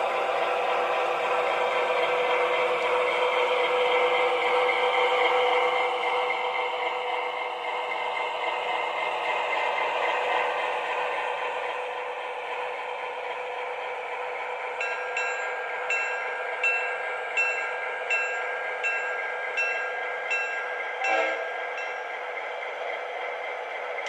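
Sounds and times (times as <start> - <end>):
model locomotive running sound: 0.0 - 24.0
locomotive bell ringing: 14.7 - 22.4.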